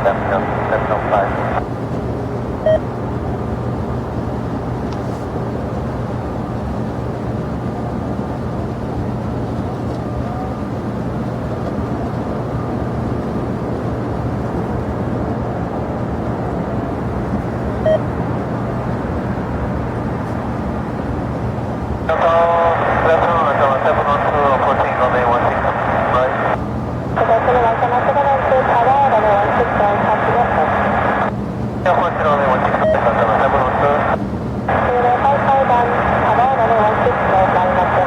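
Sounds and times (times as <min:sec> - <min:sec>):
jet engine rushing: 0:00.0 - 0:01.7, 0:11.8 - 0:38.0.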